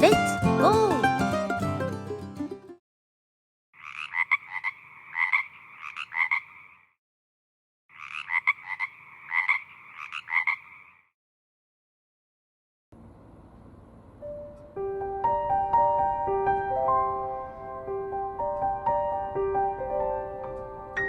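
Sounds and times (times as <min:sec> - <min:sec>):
frog buzzing croak: 0:03.8 - 0:07.0, 0:07.9 - 0:11.1.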